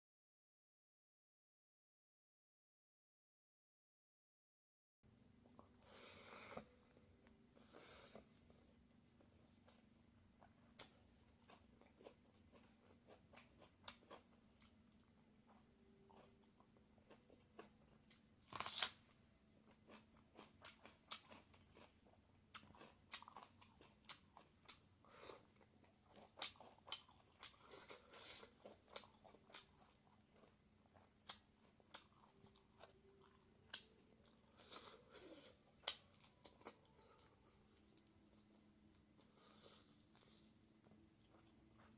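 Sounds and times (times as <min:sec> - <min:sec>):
close chewing crunches: 0:10.7 - 0:14.8, 0:15.5 - 0:19.0, 0:19.6 - 0:38.6.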